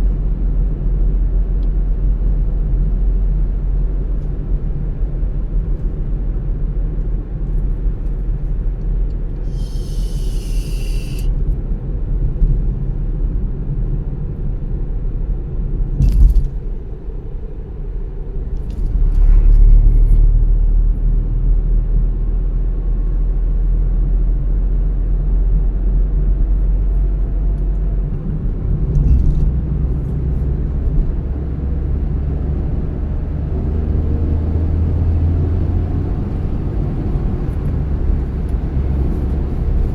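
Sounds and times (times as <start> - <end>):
car road and engine rumble: 0.0 - 39.9
brief hiss: 9.5 - 11.3.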